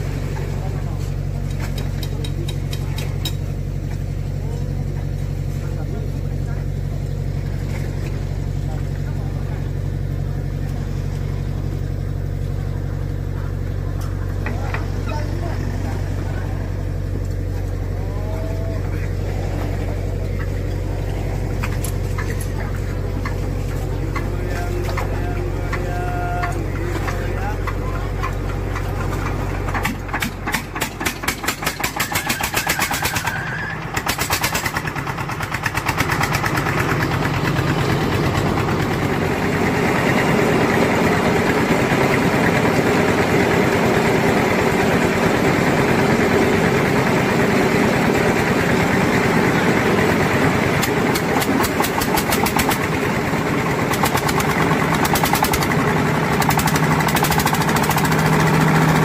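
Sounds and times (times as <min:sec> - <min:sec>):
ice crusher machine crushing ice: 0:21.4 - 0:44.3, 0:48.6 - 0:59.0.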